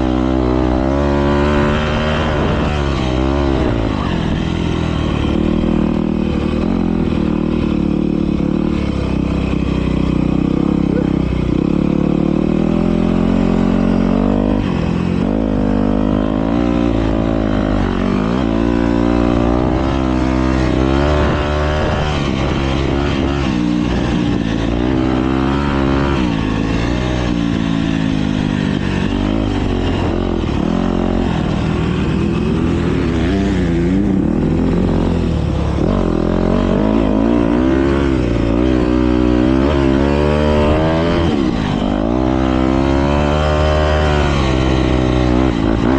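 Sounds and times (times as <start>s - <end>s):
motocross bikes revving: 0.0s - 45.9s.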